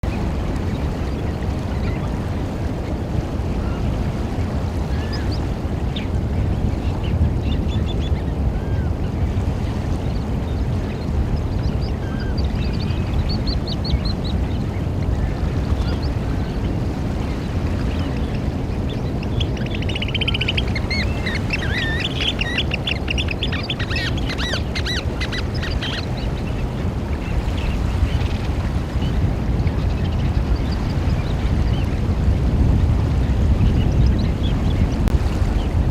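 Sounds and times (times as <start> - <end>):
oystercatchers piping: 18.0 - 31.3.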